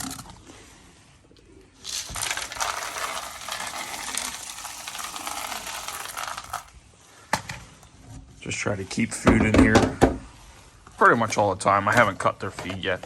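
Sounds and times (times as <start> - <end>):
grains pouring into a feeder: 1.8 - 6.7.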